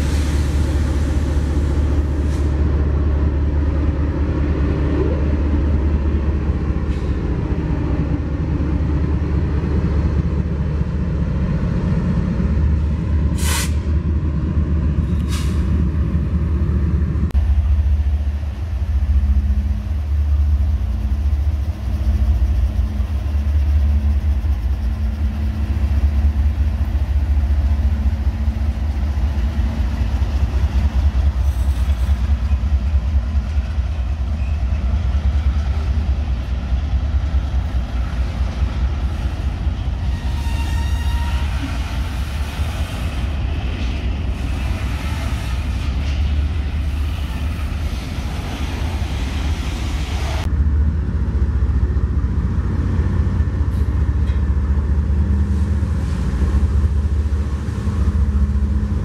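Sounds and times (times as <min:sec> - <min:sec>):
freight train low rumble: 0:00.0 - 0:59.0
locomotive engine hum: 0:00.0 - 0:59.0
short sharp hisses: 0:13.4 - 0:13.9.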